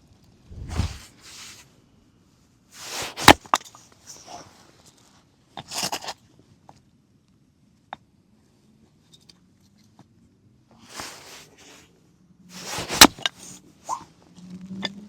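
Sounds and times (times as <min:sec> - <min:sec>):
handling rustle: 0:02.8 - 0:06.1, 0:10.8 - 0:11.8, 0:12.5 - 0:14.1.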